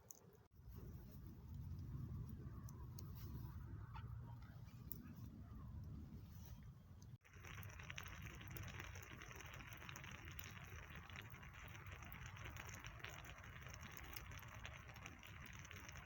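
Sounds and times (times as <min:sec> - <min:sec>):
campfire crackling and popping: 0:07.0 - 0:16.0.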